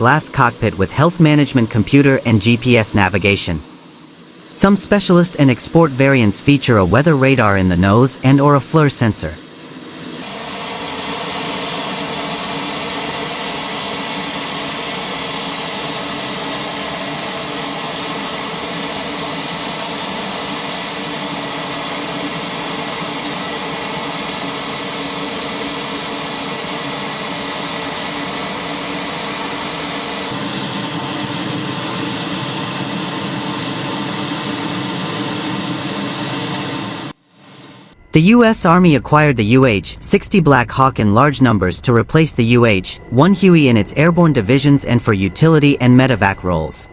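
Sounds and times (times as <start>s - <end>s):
helicopter engines and rotor: 0.0s - 38.0s.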